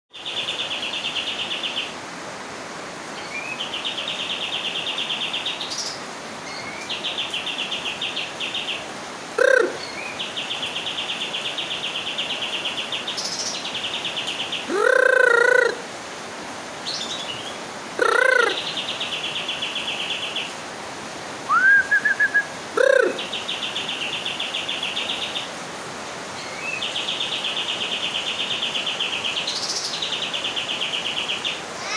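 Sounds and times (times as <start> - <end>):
low bird calls: 9.4 - 10.2, 14.5 - 15.8, 16.9 - 19.0, 21.5 - 23.9
short rising whistle: 21.5 - 22.5.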